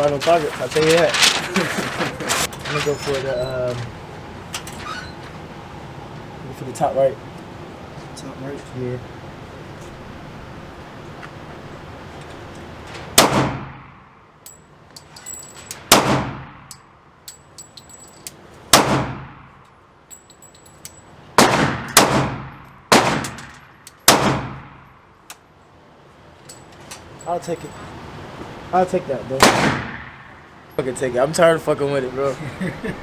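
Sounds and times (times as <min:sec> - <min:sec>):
echoing gunshots: 0:13.1 - 0:14.1, 0:15.9 - 0:16.7, 0:18.7 - 0:19.5, 0:21.4 - 0:24.9, 0:29.4 - 0:30.5
light metallic clinks: 0:14.4 - 0:15.8, 0:16.7 - 0:18.4, 0:20.1 - 0:21.1, 0:26.4 - 0:28.0.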